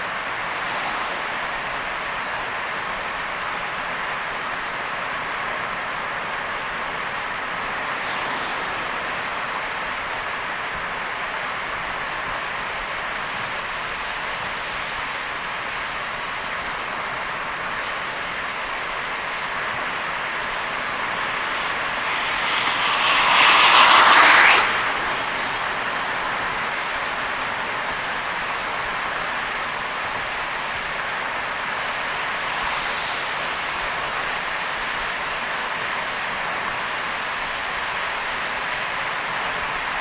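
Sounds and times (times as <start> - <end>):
loud rushing noise: 0.0 - 3.6, 5.0 - 12.0, 17.3 - 36.9
heavy rain hissing: 0.0 - 40.0
tyres on wet road: 0.0 - 40.0.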